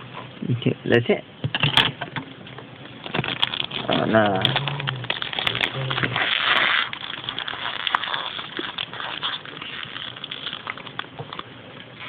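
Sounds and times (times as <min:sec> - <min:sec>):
packet rustling: 0:02.8 - 0:12.0.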